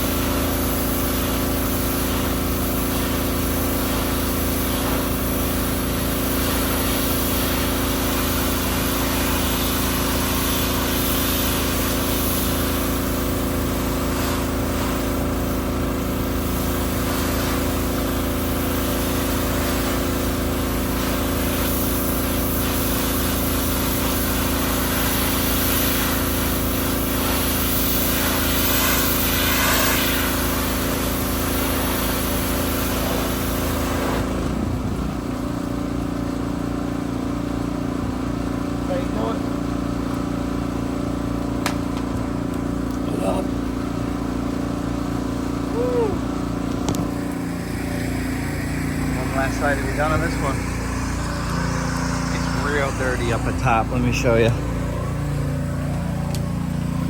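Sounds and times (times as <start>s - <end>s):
water spraying hiss: 0.0s - 57.0s
small petrol engine running: 30.2s - 57.0s.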